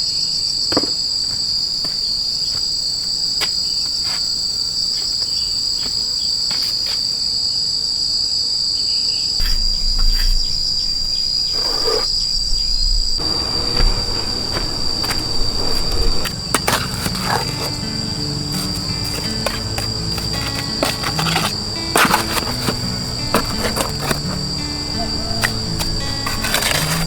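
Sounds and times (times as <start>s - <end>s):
insects chorus: 0.0s - 27.0s
rumbling handling noise: 9.4s - 27.0s.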